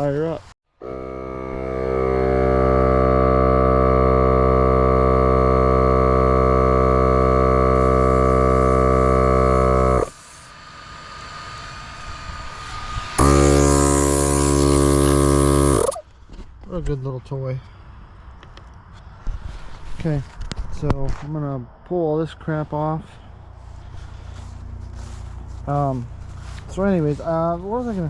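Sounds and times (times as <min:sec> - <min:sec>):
air compressor running: 0:00.8 - 0:16.0, 0:23.1 - 0:28.0
air hissing: 0:01.8 - 0:16.0.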